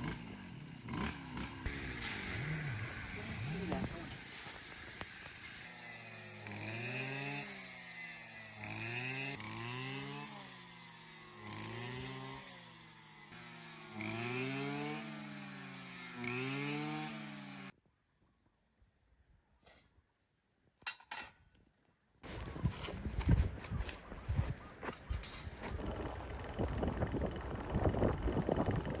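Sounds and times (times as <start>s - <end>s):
power tool engine revving: 0.0s - 17.7s
insects ticking: 21.4s - 29.0s.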